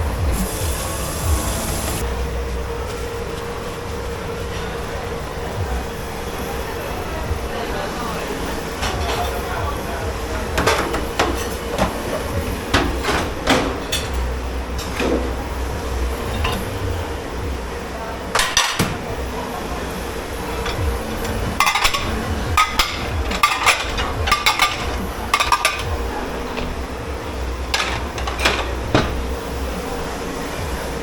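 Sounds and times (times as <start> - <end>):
kitchen machinery humming: 0.0 - 31.0
dishes and cutlery clinking: 8.8 - 15.4, 16.2 - 17.0, 18.3 - 19.1, 20.1 - 26.8, 27.7 - 29.3
ringing metal and crockery: 20.5 - 26.7.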